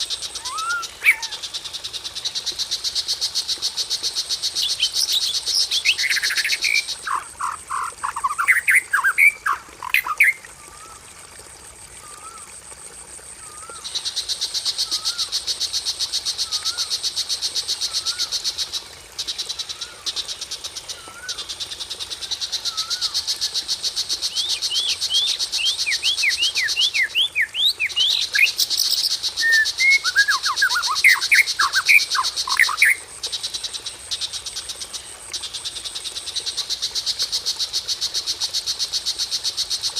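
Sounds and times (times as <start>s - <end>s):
songbird whistled calls: 0.4s - 1.4s, 24.3s - 33.0s.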